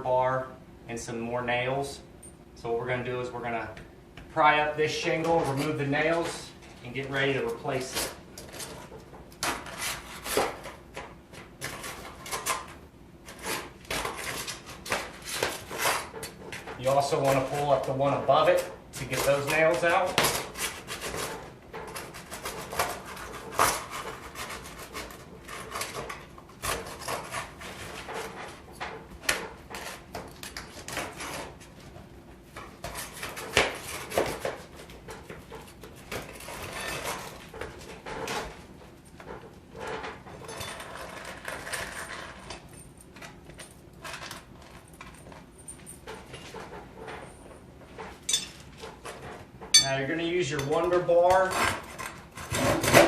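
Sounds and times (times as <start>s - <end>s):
metal tool scraping shingles: 11.6s - 28.6s, 32.8s - 34.7s, 35.7s - 38.5s, 48.2s - 53.0s.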